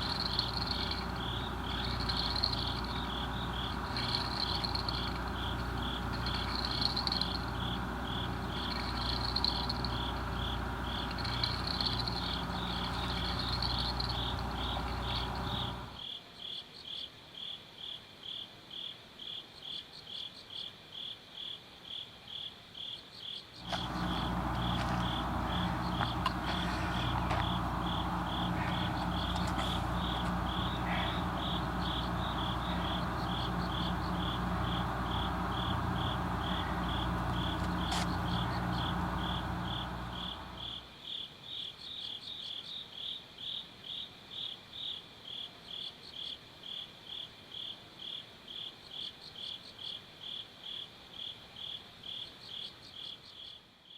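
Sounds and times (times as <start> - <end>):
low mechanical hum: 0.0 - 16.1, 23.6 - 40.9
crickets chirping: 0.0 - 53.9.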